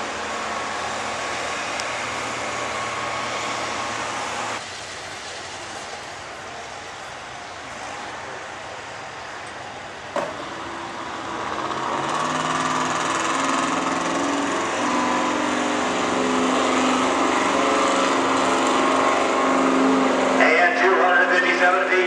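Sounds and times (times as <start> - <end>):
truck engine revving: 0.0 - 4.6, 10.2 - 22.0.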